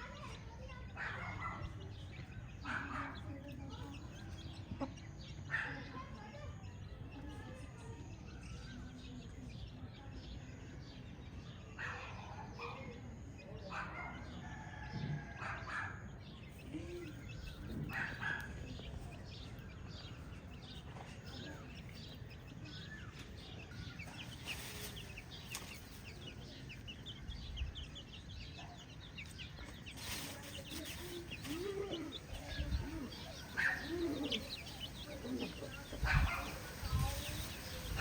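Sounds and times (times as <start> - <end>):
chickens clucking: 1.0 - 5.5, 16.5 - 38.0.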